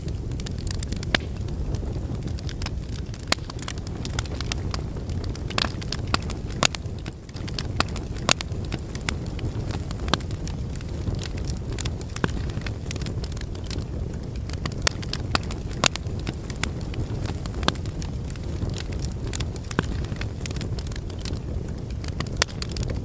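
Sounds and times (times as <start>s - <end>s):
flames rushing in fireplace: 0.0s - 23.0s
wood fire crackling and popping: 0.0s - 23.0s.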